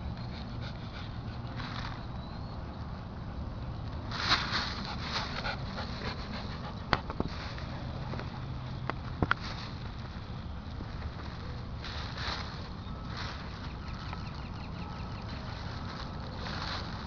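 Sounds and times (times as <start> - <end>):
dog breathing quickly: 0.0 - 1.6, 4.8 - 8.1.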